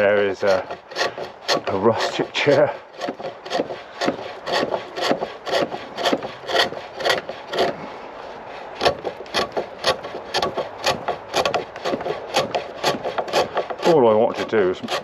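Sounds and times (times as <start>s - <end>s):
chisel scraping wood on lathe: 0.0s - 15.0s.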